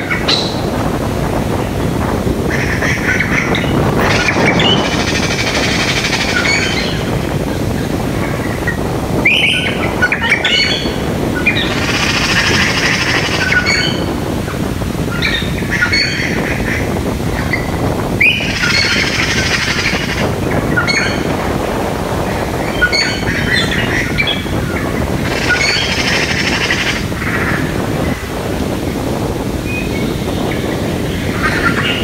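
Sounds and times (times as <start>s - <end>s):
birds calling: 0.0s - 32.0s
low rushing background: 0.0s - 32.0s.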